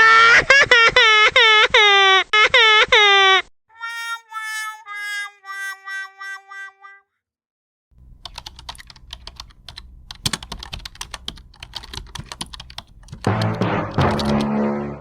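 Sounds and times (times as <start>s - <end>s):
rapid typing clicks: 8.2s - 14.5s
loud music: 13.3s - 15.0s.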